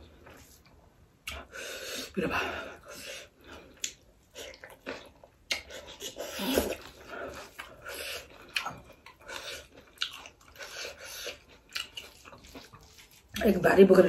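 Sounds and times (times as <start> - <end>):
person chewing with mouth smacks: 3.5 - 13.4.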